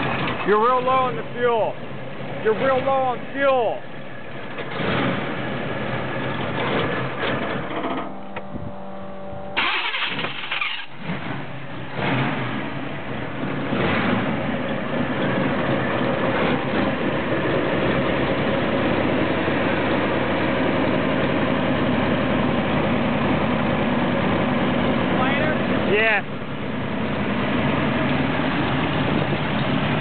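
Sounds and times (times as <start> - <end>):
car engine revving: 4.3 - 21.0.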